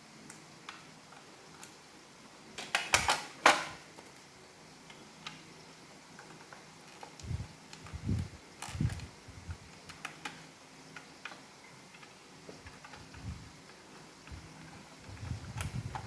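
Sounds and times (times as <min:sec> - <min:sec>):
plastic parts clicking: 0:02.6 - 0:04.2.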